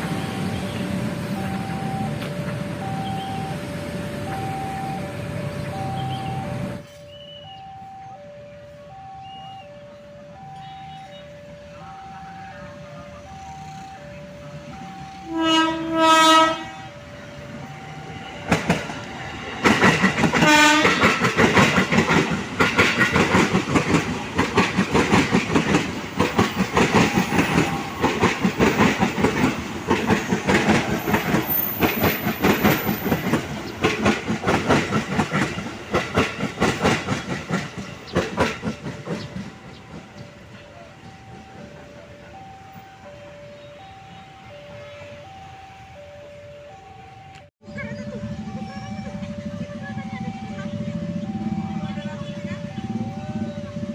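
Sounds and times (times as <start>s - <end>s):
two-note electronic crossing alarm: 0.0s - 19.7s, 39.4s - 53.9s
train horn blast: 14.8s - 17.2s, 20.3s - 21.3s
train wheels clacking: 18.0s - 42.0s.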